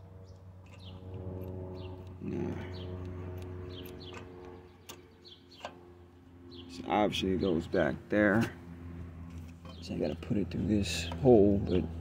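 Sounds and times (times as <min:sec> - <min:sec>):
low machine hum: 0:00.0 - 0:12.0
bird chirping: 0:00.2 - 0:01.1, 0:01.7 - 0:07.9, 0:09.6 - 0:10.3.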